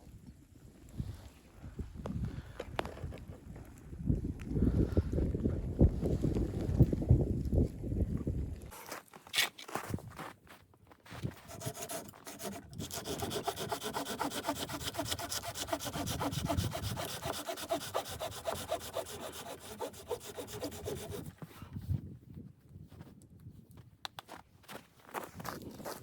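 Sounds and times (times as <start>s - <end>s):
saw cutting wood: 11.3s - 21.3s.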